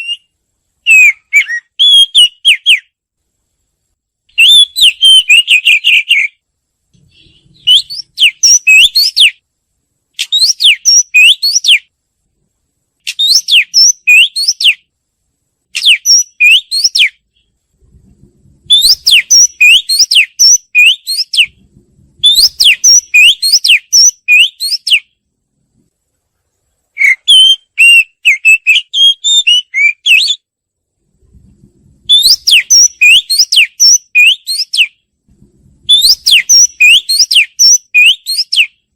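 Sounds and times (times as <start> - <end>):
bird singing whistled phrases: 0.0 - 2.9, 4.3 - 6.4, 7.2 - 9.4, 10.2 - 11.9, 13.1 - 14.8, 15.8 - 17.5, 18.7 - 21.6, 22.2 - 25.1, 27.0 - 30.4, 32.1 - 35.0, 35.9 - 38.8.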